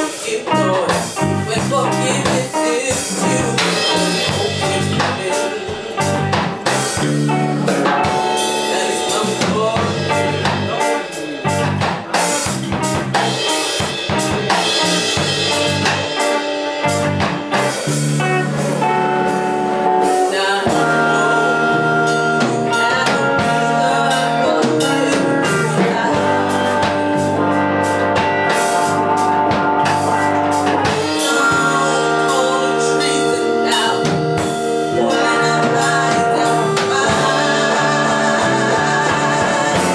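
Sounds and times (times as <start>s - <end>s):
blues band playing live: 0.0s - 39.9s
drum hits: 1.0s - 19.0s.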